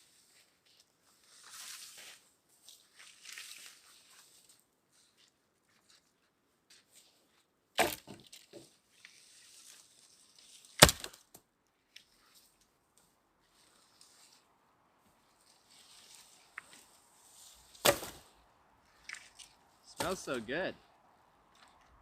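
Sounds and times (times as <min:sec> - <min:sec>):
faint rustling and scraping: 0:00.0 - 0:07.5, 0:08.2 - 0:10.8, 0:11.7 - 0:20.1
wood cracking sharply: 0:07.8 - 0:08.3, 0:10.8 - 0:11.4, 0:17.8 - 0:18.3, 0:19.0 - 0:20.4.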